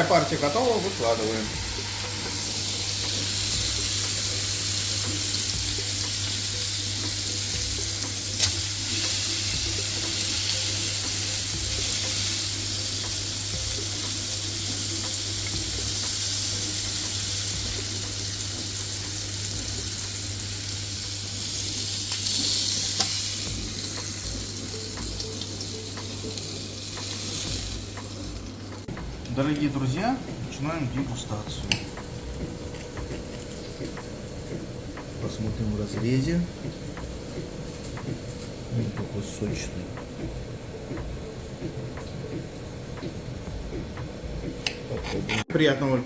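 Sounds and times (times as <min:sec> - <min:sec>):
meat sizzling on a grill: 0:00.0 - 0:29.9.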